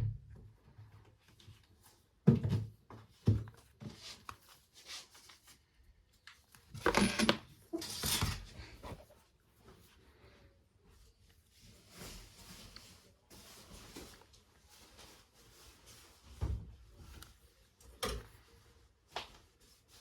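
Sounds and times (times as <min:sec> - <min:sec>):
scraping and rustling: 0:11.2 - 0:17.5.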